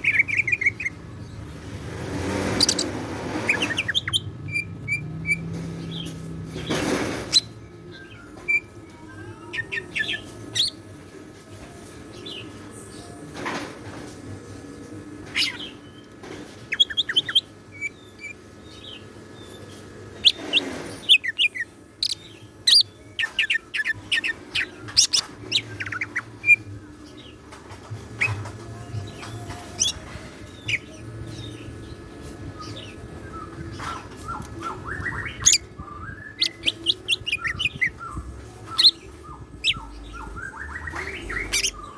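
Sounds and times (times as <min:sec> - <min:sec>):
bird chirping and trilling: 0:00.0 - 0:10.8, 0:15.3 - 0:27.5, 0:28.1 - 0:41.9.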